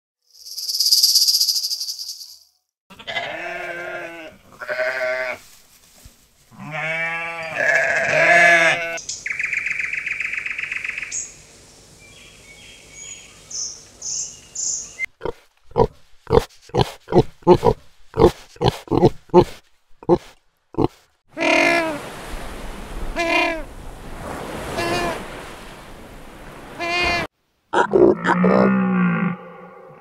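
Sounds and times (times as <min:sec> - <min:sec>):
high chirps: 0:00.3 - 0:02.5
insect buzz: 0:00.3 - 0:02.6
wavering bleats: 0:02.9 - 0:05.4, 0:06.5 - 0:09.0, 0:15.2 - 0:22.0, 0:24.7 - 0:25.2, 0:26.8 - 0:30.0
pig grunting: 0:15.2 - 0:21.8, 0:27.8 - 0:30.0.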